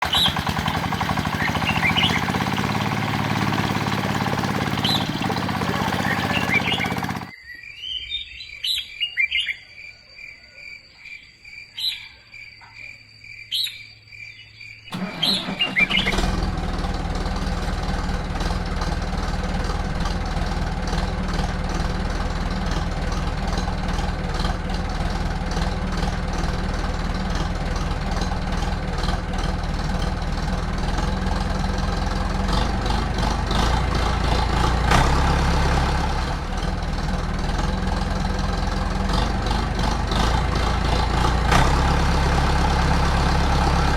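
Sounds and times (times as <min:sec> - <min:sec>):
engine starting and running: 0:00.0 - 0:07.4, 0:14.9 - 0:43.9
birds chirping: 0:00.0 - 0:16.4.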